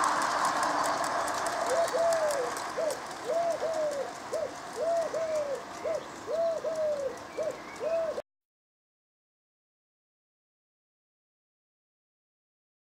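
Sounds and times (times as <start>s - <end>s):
bird hooting: 1.2s - 8.2s.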